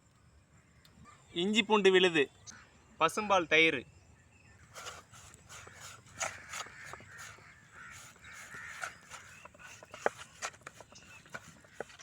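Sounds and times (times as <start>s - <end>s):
crows cawing: 5.5s - 12.0s.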